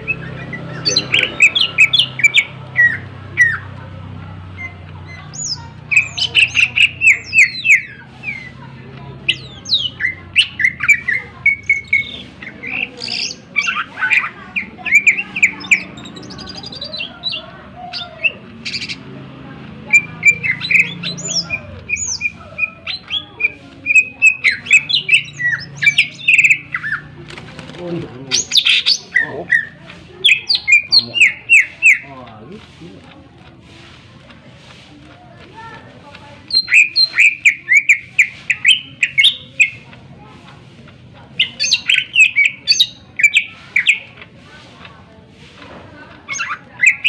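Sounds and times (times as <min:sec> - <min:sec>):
bird singing chirps and whistles: 0:36.5 - 0:39.8.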